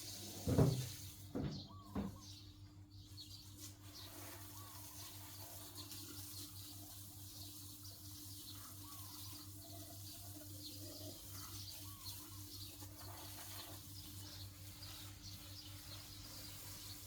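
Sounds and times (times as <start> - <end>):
faint bird chirps: 8.2 - 17.0.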